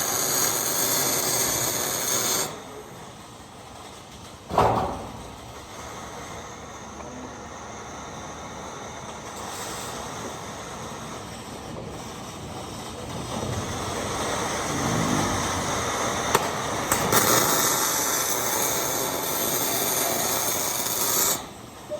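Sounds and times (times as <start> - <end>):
welding arc-strike clicks: 0.0 - 2.7, 12.2 - 21.6
crackling welding arc hiss: 0.0 - 21.9
steady background noise: 0.0 - 21.9.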